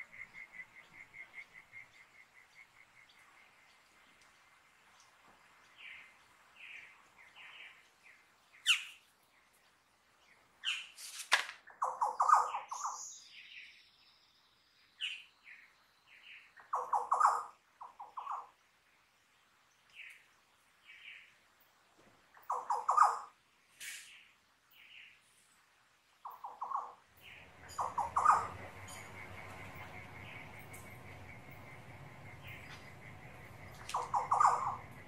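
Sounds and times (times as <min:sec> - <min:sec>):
harsh bird chattering call: 0:26.3 - 0:35.0.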